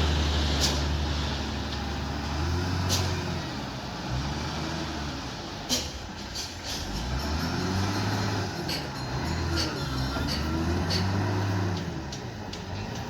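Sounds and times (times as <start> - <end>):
heavy vehicle engine running: 0.0 - 13.0.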